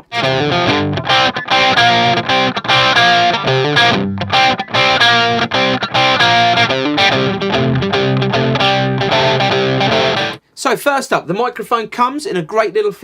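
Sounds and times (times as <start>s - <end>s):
distorted electric guitar chords: 0.0s - 10.4s.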